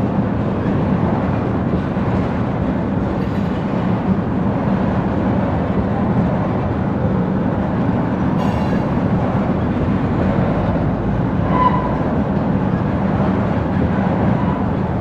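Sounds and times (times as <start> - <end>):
train wheels rumbling on rail: 0.0 - 15.0
high wheel squeal: 11.4 - 12.1.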